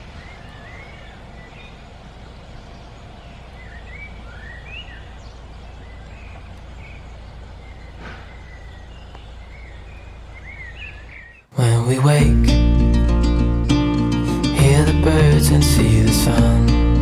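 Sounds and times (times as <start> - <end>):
songbirds chirping and warbling: 0.0 - 11.5
low outdoor rumble: 11.6 - 17.0.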